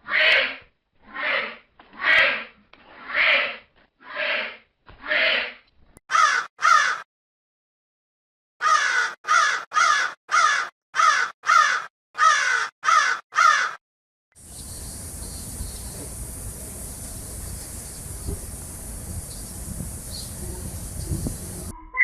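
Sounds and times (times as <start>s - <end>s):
harsh caw-like animal calls: 0.0s - 7.1s, 8.6s - 13.8s
steady background hiss: 14.4s - 21.7s.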